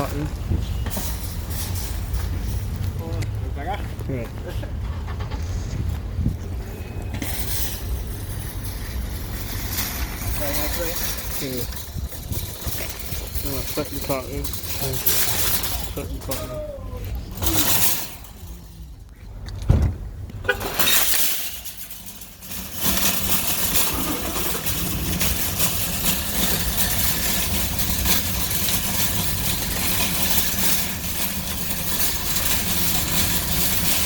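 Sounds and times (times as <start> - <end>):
heavy thump: 19.6 - 20.1.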